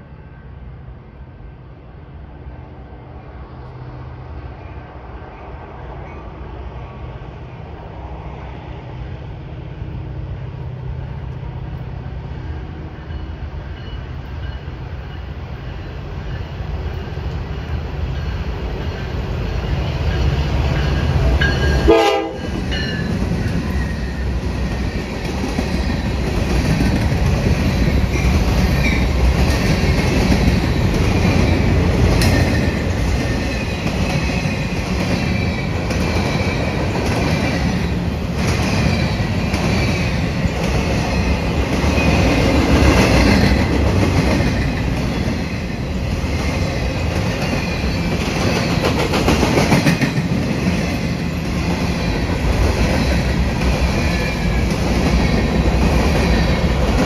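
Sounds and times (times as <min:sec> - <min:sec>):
train horn blast: 0:21.8 - 0:22.6.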